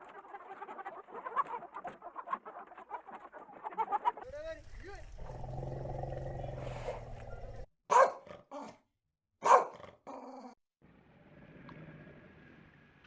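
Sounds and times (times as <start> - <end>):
dog growling: 5.1 - 8.8
dog barking: 6.7 - 8.8, 9.4 - 9.9.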